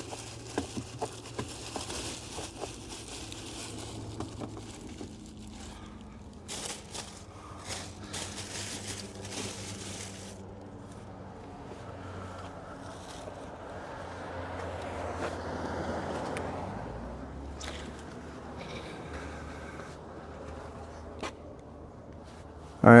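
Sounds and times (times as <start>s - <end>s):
small clicks and crackles: 0.0s - 10.4s
plastic sheet crinkling: 0.0s - 10.5s.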